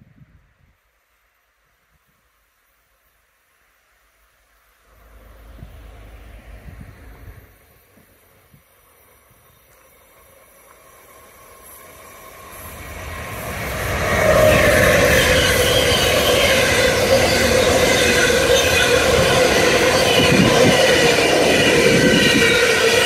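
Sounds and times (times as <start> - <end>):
freight train rumbling on rails: 4.8 - 23.0.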